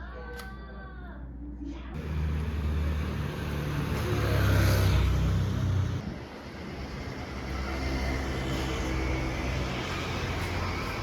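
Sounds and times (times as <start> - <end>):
motor vehicle passing: 2.0 - 6.2
steady low traffic rumble: 2.0 - 11.0.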